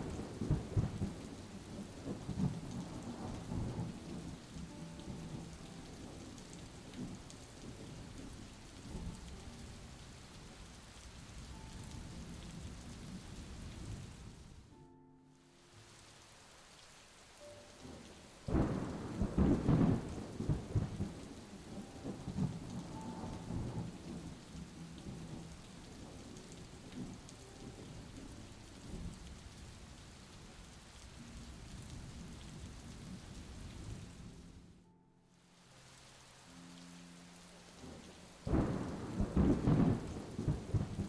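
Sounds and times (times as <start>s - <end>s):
thunder rumbling: 0.0s - 9.2s, 17.8s - 27.2s, 37.8s - 41.0s
steady rain falling: 0.0s - 41.0s.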